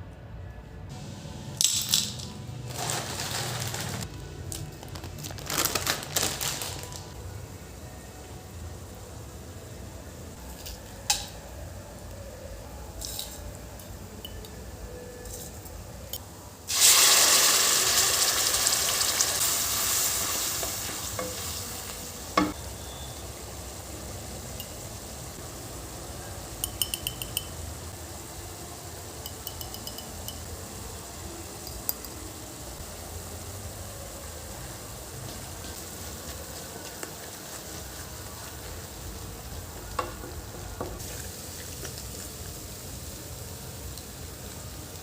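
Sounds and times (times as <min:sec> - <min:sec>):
food sizzling in hot oil: 0:16.6 - 0:45.0.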